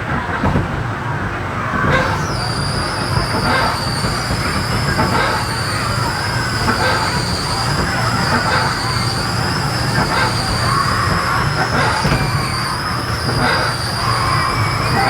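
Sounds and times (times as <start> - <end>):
constant high squeal: 0.0 - 15.0
ride wheels rumbling on rail: 0.0 - 15.0.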